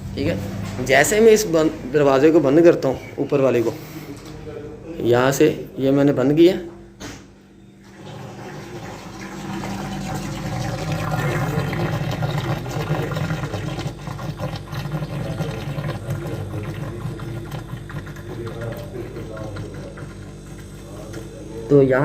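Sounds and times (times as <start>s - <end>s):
compressor humming: 0.0s - 22.0s
refrigerator gurgling: 7.8s - 22.0s.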